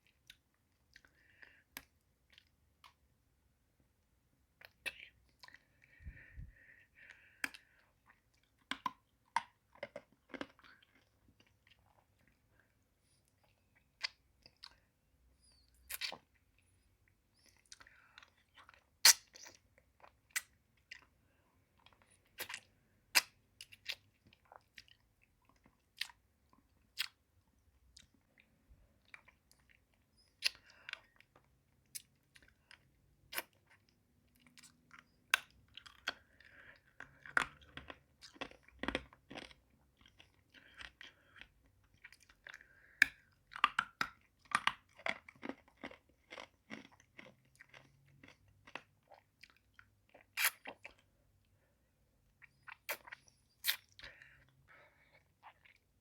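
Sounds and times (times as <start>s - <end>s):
crunching hard candy in mouth: 34.6s - 51.0s.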